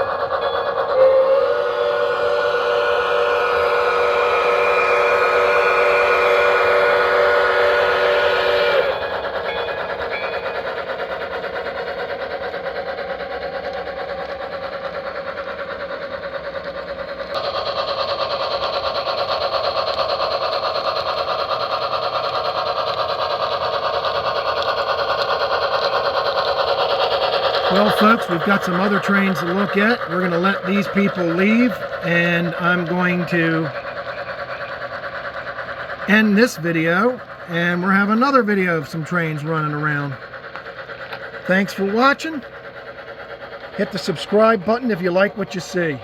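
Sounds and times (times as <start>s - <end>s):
multi-tone steam whistle: 0.0s - 11.4s, 17.2s - 40.2s, 41.1s - 42.5s
rapid steam locomotive chuffing: 0.0s - 46.0s.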